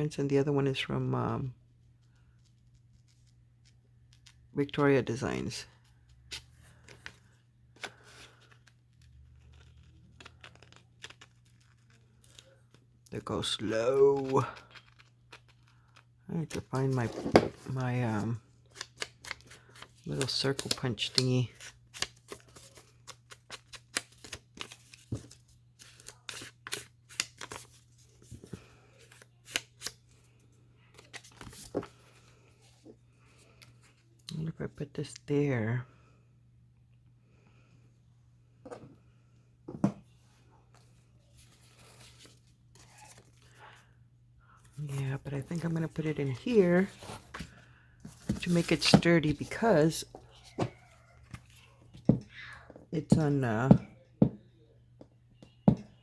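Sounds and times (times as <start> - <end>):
paper rustling and crinkling: 40.8 - 43.6.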